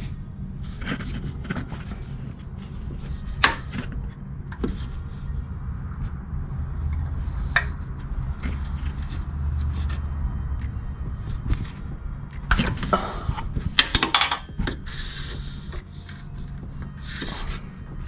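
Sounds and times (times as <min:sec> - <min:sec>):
steady low hum: 0:00.0 - 0:18.0
knocks and clicks: 0:09.9 - 0:14.9.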